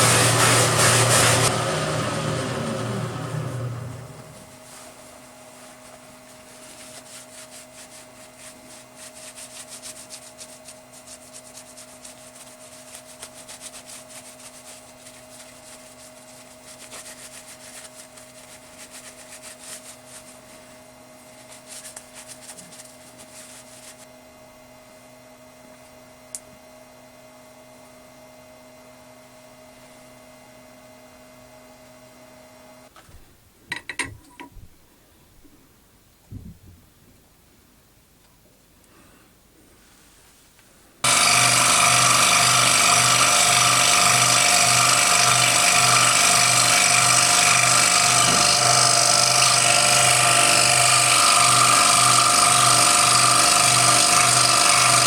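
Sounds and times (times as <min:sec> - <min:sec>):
scroll saw cutting metal: 0:00.0 - 0:04.4, 0:41.0 - 0:55.0
motor hum: 0:00.0 - 0:04.8, 0:41.0 - 0:55.0.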